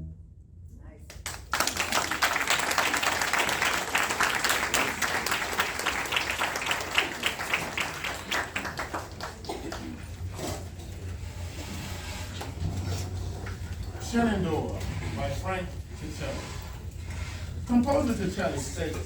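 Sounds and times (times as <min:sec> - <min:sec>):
audience applauding: 0:01.1 - 0:10.5.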